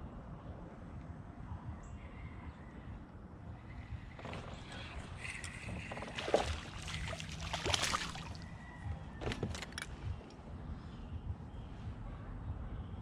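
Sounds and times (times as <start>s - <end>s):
water sloshing against kayak hull: 4.2s - 8.4s
knocks and clunks: 9.2s - 10.2s.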